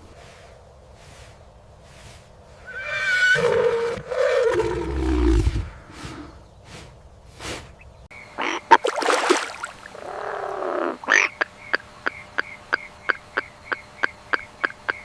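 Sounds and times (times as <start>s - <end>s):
rough animal calls: 7.8s - 12.2s.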